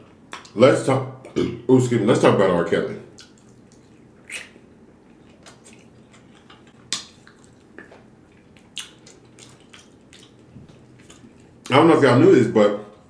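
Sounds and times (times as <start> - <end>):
chewing: 3.1 - 11.7.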